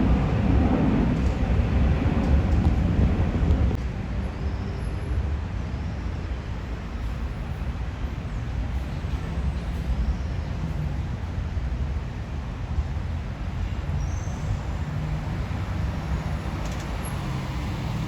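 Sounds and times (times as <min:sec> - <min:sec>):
airplane cabin engine rumble: 0:00.0 - 0:04.0.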